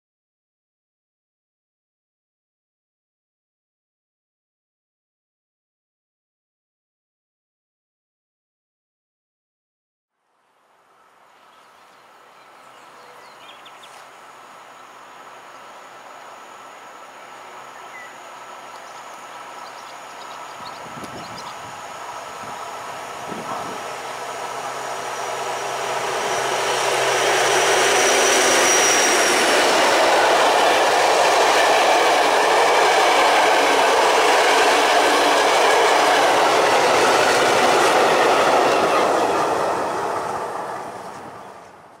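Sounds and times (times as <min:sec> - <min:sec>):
diesel locomotive engine hum: 0:10.7 - 0:42.0
train wheel and rail noise: 0:10.7 - 0:42.0.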